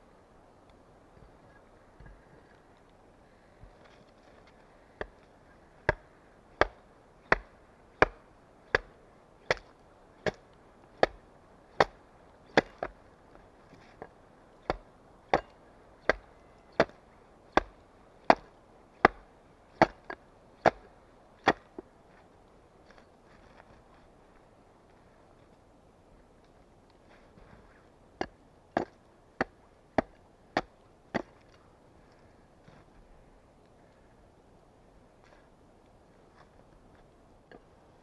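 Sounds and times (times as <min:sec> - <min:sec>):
axe chopping wood: 0:05.8 - 0:11.2, 0:11.8 - 0:13.0, 0:14.0 - 0:21.8, 0:28.2 - 0:31.4.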